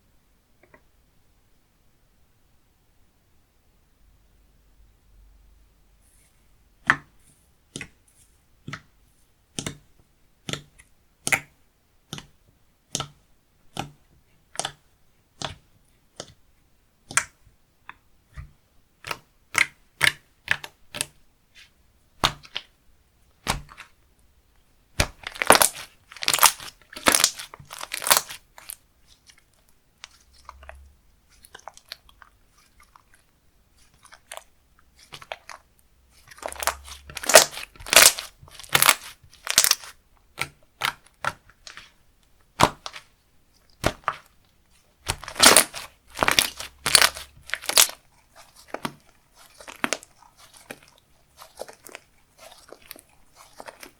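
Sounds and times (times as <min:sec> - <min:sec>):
slime clicking and popping: 0:12.9 - 0:14.8, 0:25.0 - 0:28.8, 0:36.3 - 0:41.9, 0:42.5 - 0:43.1, 0:45.0 - 0:48.0.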